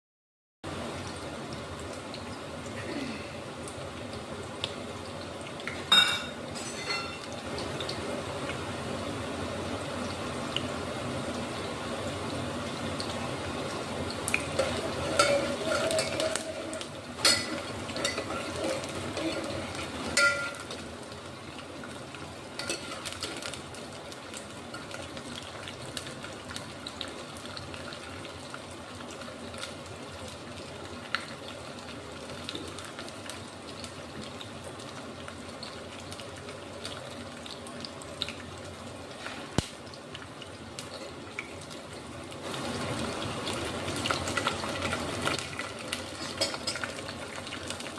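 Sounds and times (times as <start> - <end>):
food sizzling in a pan: 0.7 - 47.9
spoon scraping a pan: 14.5 - 20.6.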